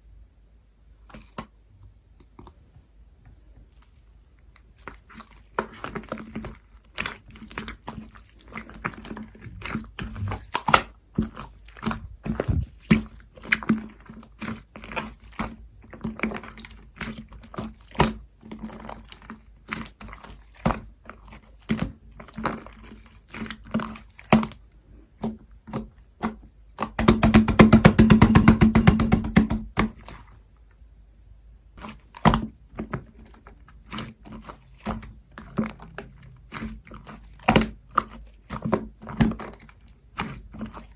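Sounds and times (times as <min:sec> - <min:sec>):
slime clicking and popping: 0:25.2 - 0:30.2, 0:32.0 - 0:40.8.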